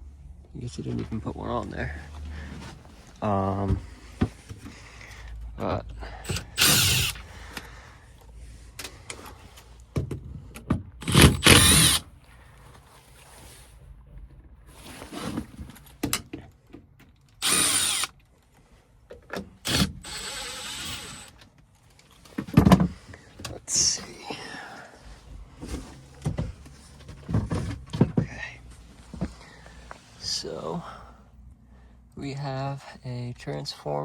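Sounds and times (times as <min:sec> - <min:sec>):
cordless drill running: 0:06.3 - 0:07.3, 0:11.0 - 0:12.0, 0:17.4 - 0:18.1, 0:19.6 - 0:21.3.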